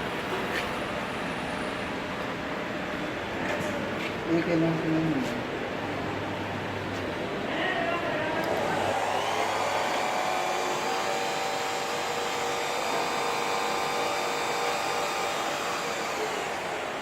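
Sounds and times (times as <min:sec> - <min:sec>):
milling machine motor whining: 0:08.4 - 0:17.0.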